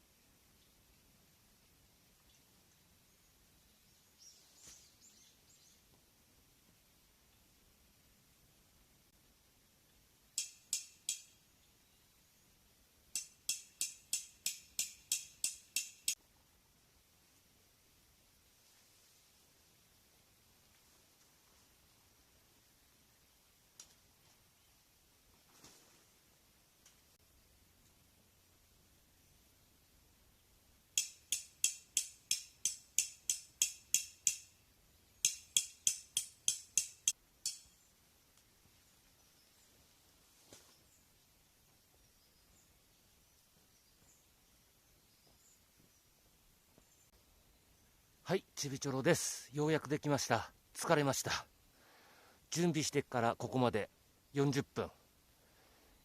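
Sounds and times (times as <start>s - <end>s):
hammer striking tent peg: 10.4s - 11.3s, 13.2s - 16.2s, 31.0s - 34.5s, 35.2s - 37.7s.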